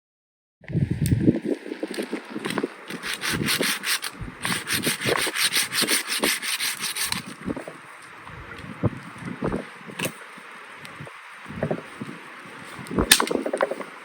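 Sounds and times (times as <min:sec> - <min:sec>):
rasping strokes on wood: 0:02.9 - 0:07.6.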